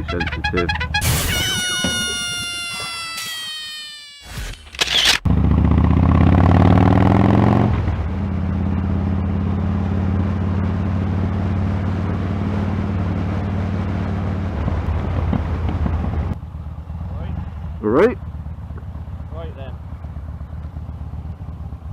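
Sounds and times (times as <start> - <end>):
motorcycle engine idling: 15.7 - 21.9.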